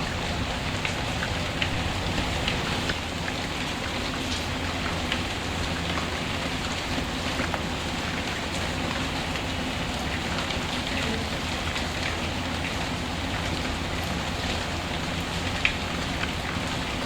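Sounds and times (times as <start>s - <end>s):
steady rain: 0.0s - 17.0s
wood fire crackles and ticks: 11.6s - 16.8s.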